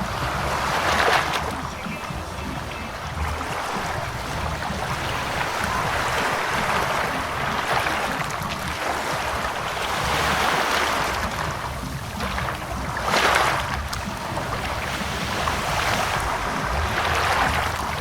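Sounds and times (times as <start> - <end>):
ocean surf washing in: 0.0 - 18.0.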